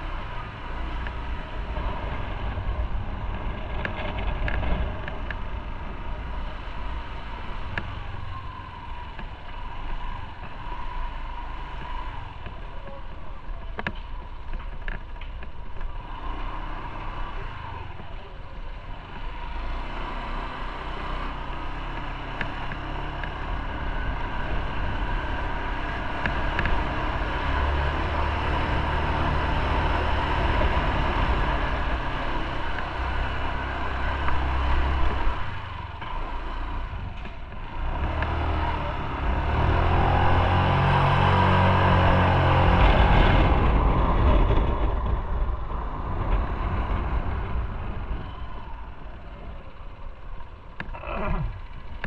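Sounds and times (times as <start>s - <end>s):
wind and road noise: 0.0s - 52.0s
motorcycle engine running: 20.7s - 52.0s.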